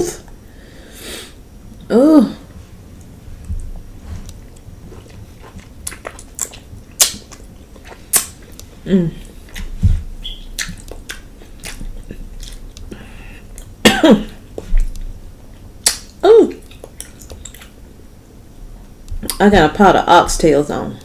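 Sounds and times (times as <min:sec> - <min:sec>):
person humming: 0:01.8 - 0:02.5, 0:08.8 - 0:09.3
person chewing wetly: 0:03.5 - 0:17.8.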